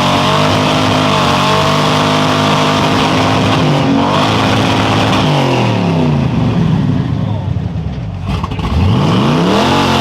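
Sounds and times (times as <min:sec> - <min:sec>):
small racing engine revving: 0:08.2 - 0:10.0.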